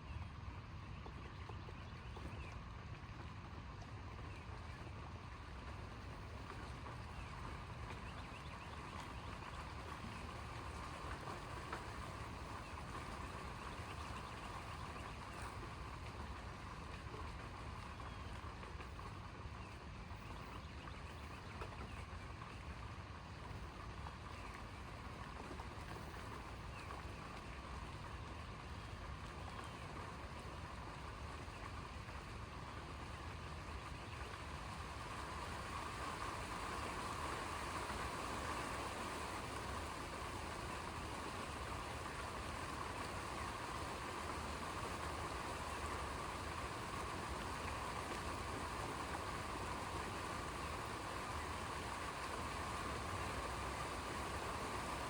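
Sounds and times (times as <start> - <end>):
steady rain hiss: 34.6 - 55.0.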